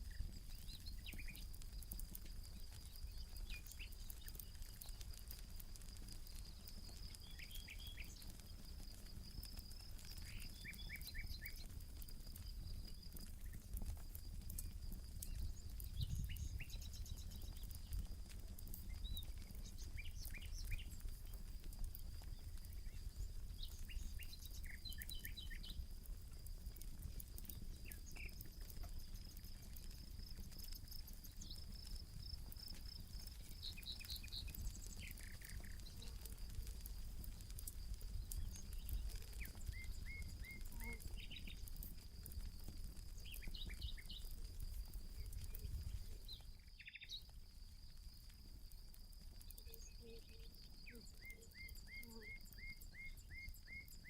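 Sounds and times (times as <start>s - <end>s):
campfire crackling: 0.0s - 54.0s
high-pitched insect trill: 38.3s - 54.0s.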